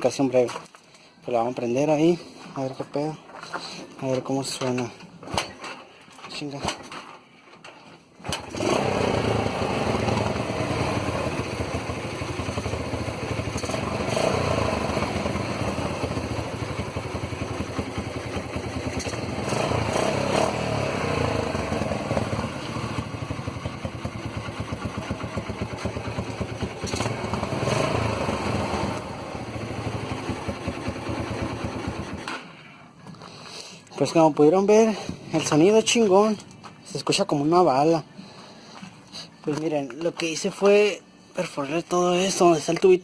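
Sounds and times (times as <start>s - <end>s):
motorcycle engine revving: 8.2s - 32.5s.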